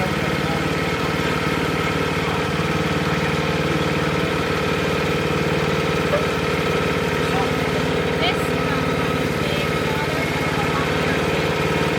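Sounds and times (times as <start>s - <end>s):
sawmill engine running: 0.0s - 11.9s.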